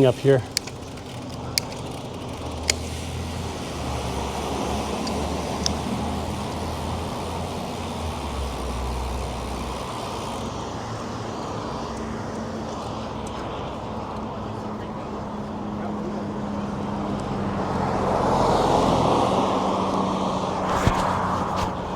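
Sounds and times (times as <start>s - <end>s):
street traffic noise: 0.0s - 21.9s
wind rumble on microphone: 18.9s - 21.9s.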